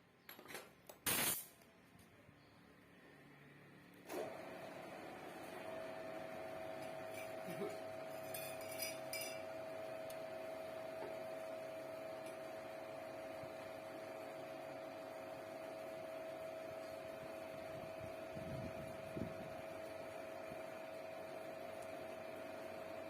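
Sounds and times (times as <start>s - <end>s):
steady electrical hum: 0.0s - 4.8s.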